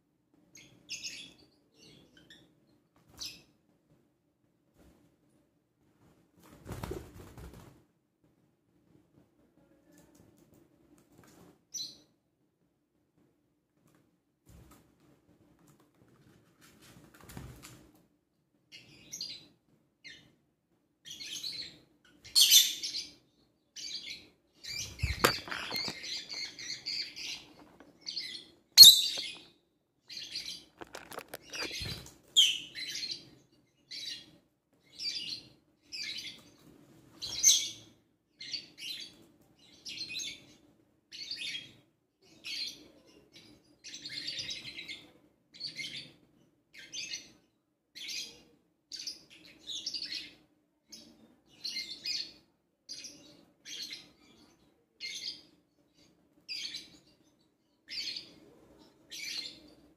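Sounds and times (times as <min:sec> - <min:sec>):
small birds chirping: 0:00.4 - 0:03.6, 0:09.6 - 0:12.3, 0:18.6 - 0:59.9.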